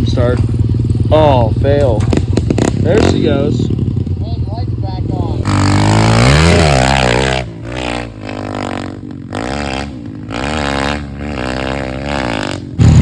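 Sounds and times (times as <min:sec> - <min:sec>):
louder low engine: 0:00.0 - 0:13.0
small motorbike engine revving: 0:05.1 - 0:13.0.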